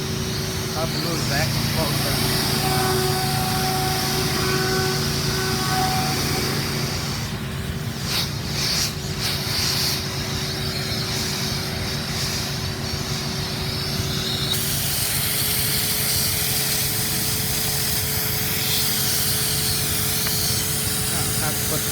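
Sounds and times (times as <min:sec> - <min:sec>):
machinery humming: 0:00.0 - 0:21.9.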